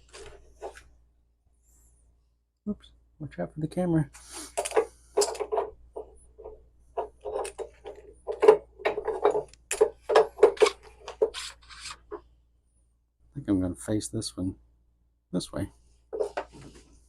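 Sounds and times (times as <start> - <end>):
tools clicking and knocking: 4.5 - 12.2.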